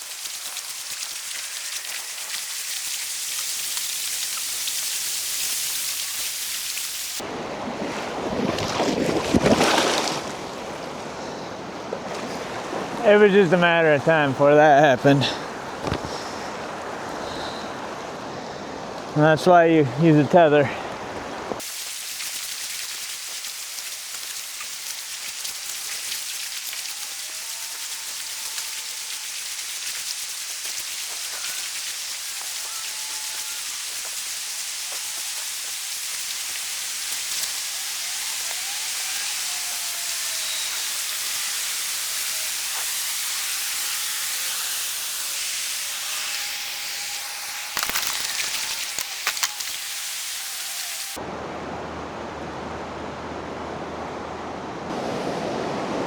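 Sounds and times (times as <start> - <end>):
rain on water surface hiss: 0.0 - 7.4, 21.6 - 43.7, 46.7 - 51.2
churning water: 0.0 - 27.2.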